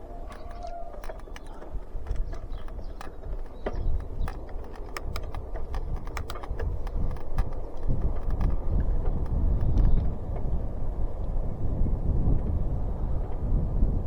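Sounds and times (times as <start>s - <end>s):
bicycle clicks and ticks: 0.0s - 10.6s.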